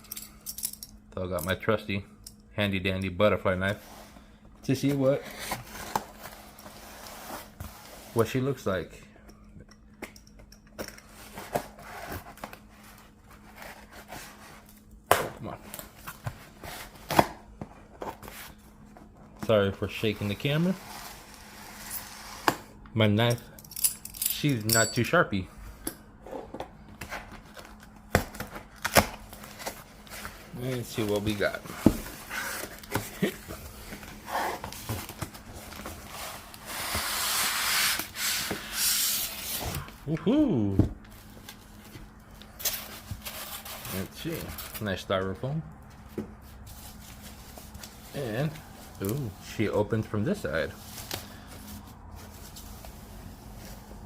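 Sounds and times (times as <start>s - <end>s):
rustling scrape: 19.9s - 22.6s, 50.7s - 54.0s.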